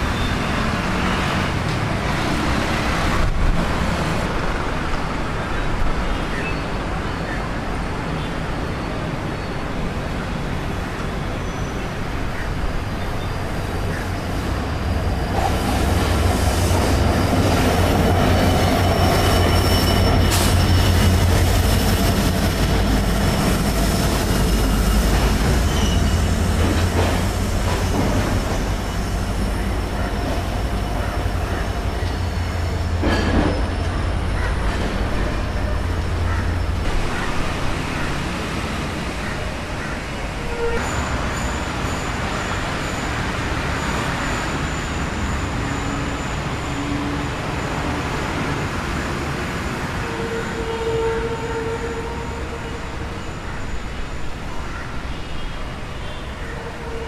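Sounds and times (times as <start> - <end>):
train rumbling past: 0.0 - 57.0
high wheel squeal: 11.1 - 36.9, 39.8 - 57.0.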